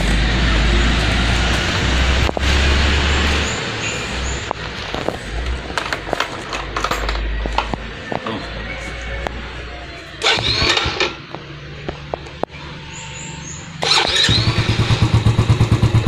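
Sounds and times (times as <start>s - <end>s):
sharp clicks and knocks: 4.4s - 8.3s
small motorcycle engine rumbling: 9.2s - 16.0s.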